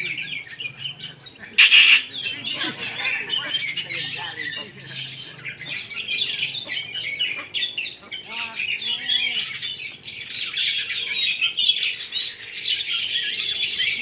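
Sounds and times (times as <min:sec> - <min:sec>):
birds singing in chorus: 0:00.0 - 0:14.0.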